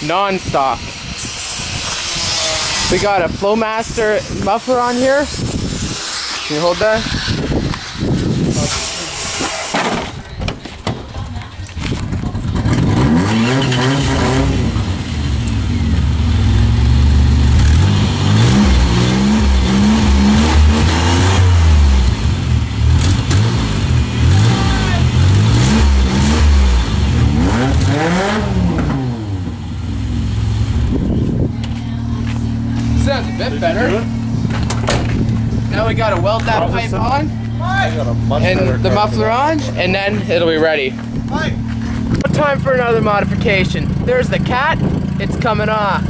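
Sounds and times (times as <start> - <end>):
minivan engine revving and idling: 11.8 - 46.0.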